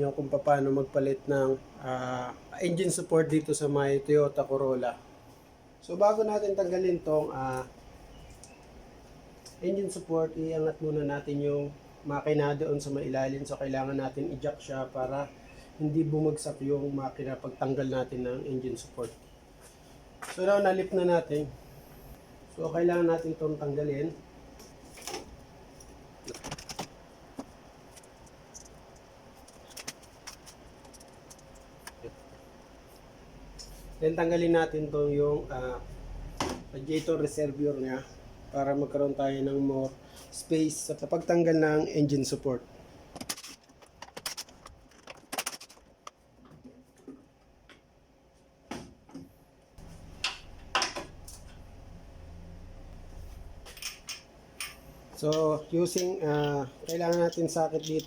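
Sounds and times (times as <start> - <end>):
low steady hum: 49.3 - 58.0
tools clicking and knocking: 53.6 - 58.0.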